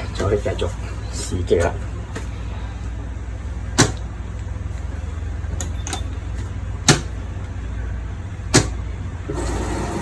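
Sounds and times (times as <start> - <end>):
washing machine humming: 0.0 - 10.0
washing machine clicks: 3.7 - 4.1, 5.6 - 6.2, 6.8 - 7.2, 8.5 - 8.8.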